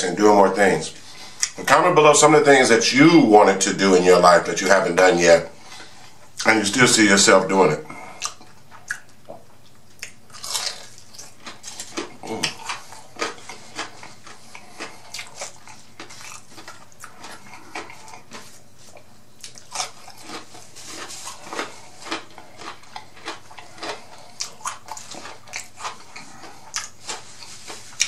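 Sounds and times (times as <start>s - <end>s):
person chewing food: 1.1s - 1.6s, 7.9s - 28.0s.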